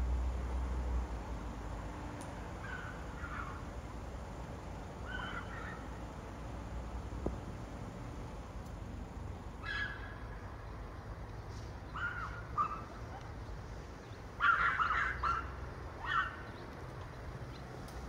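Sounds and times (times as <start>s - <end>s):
short bird calls: 5.0s - 5.9s.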